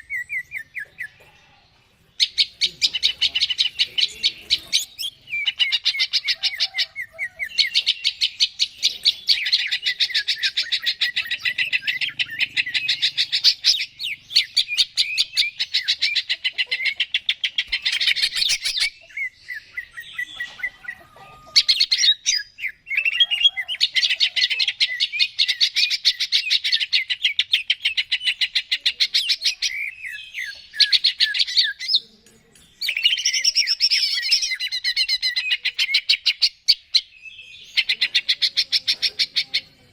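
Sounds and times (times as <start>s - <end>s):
bird singing chattering phrases: 0.0s - 39.9s.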